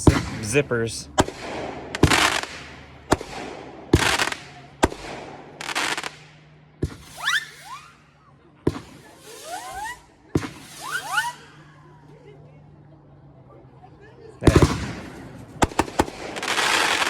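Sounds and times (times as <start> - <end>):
firework launch cracks: 0.0 - 8.1, 8.7 - 11.7, 14.4 - 17.0
hissing firework bursts: 0.0 - 11.8, 14.4 - 17.0
rising whistling firework streaks: 1.2 - 12.1, 14.4 - 17.0.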